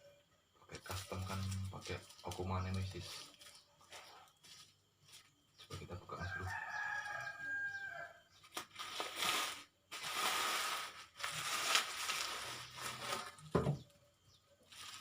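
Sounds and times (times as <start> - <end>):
rooster crowing: 6.1 - 8.4
packaging crinkling and tearing: 8.5 - 13.5.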